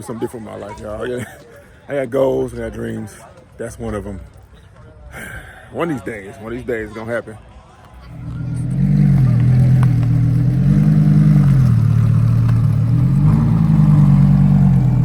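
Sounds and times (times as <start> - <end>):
car engine revving: 8.0 - 15.0.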